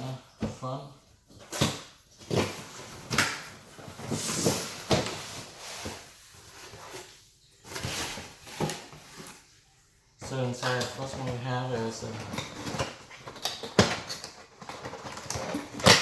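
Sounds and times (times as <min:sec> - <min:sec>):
cardboard rustle: 0:01.3 - 0:09.5, 0:10.2 - 0:16.0.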